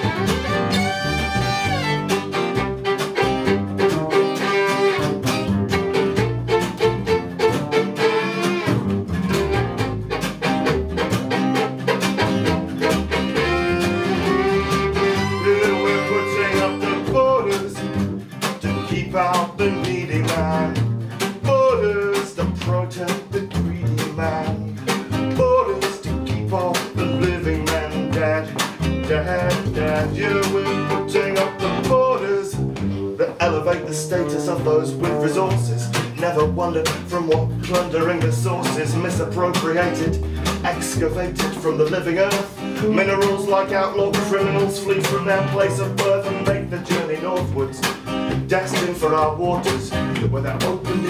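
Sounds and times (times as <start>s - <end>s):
bowed string melody: 0.0s - 22.7s, 23.6s - 36.2s
strummed acoustic guitar: 0.0s - 51.0s.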